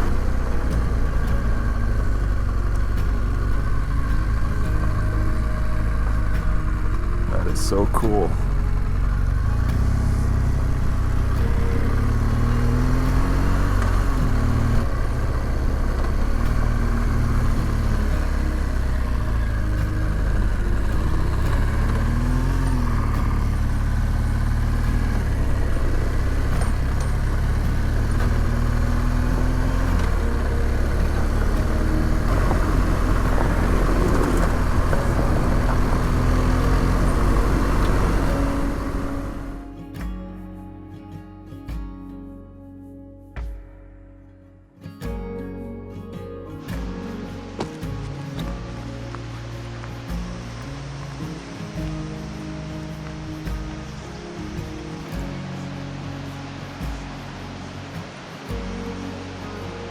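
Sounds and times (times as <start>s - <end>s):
motorcycle engine revving: 0.0s - 39.7s
wind and road noise: 0.0s - 40.0s, 46.2s - 59.9s.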